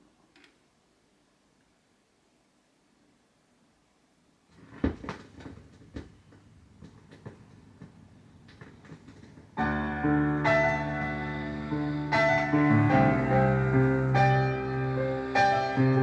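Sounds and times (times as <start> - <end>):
music with keyboard chords: 9.6 - 16.0.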